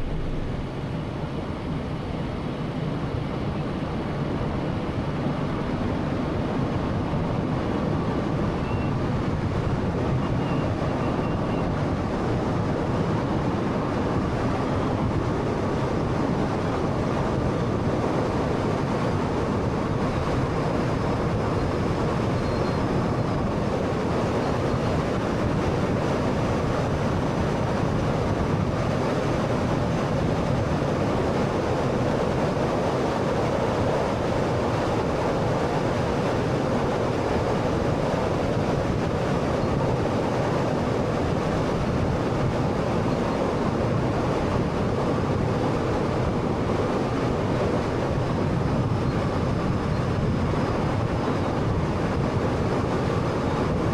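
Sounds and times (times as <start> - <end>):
car road and tyre noise: 0.0 - 2.2.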